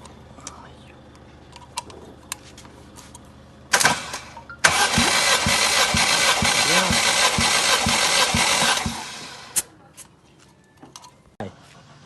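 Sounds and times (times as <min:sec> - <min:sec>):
car engine cranking: 0:03.7 - 0:09.7
starter whirr: 0:03.7 - 0:09.7.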